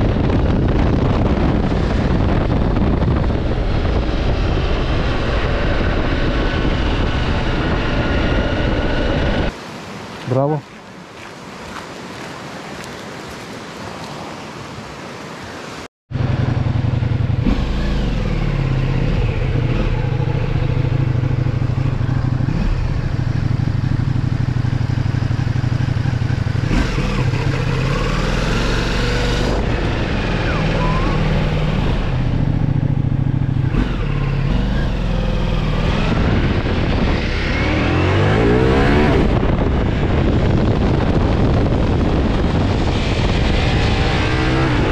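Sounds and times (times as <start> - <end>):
motorcycle engine accelerating: 0.0 - 9.5, 16.1 - 44.9
wind rushing: 0.0 - 9.6, 27.6 - 44.9.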